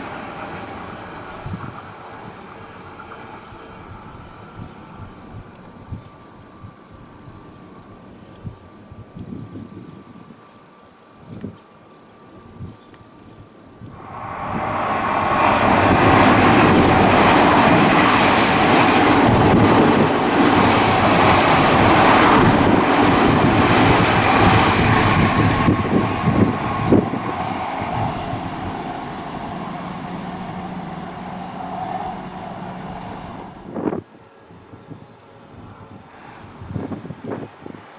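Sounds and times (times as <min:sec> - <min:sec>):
electric train passing: 0:00.0 - 0:05.9, 0:13.9 - 0:34.4.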